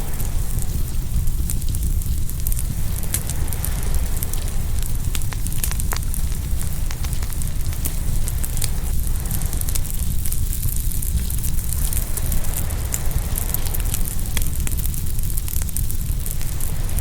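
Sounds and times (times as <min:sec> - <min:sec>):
ocean waves washing on shore: 0:00.0 - 0:17.0
wood fire crackling and popping: 0:00.0 - 0:17.0.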